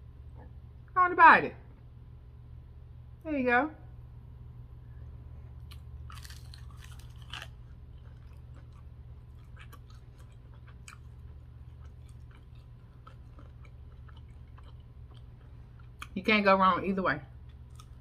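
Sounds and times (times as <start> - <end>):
low steady hum: 0.0 - 18.0
crunchy chewing: 5.4 - 16.2, 17.4 - 18.0.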